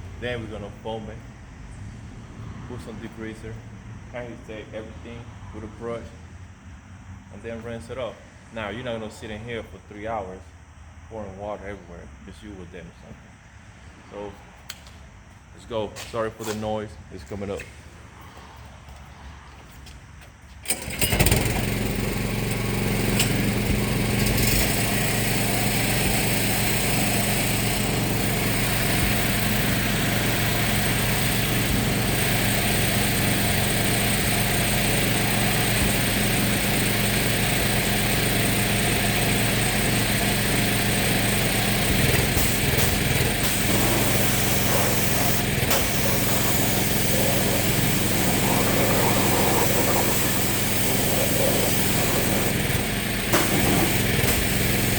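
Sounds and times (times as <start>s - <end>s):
machine motor humming: 20.7s - 54.9s.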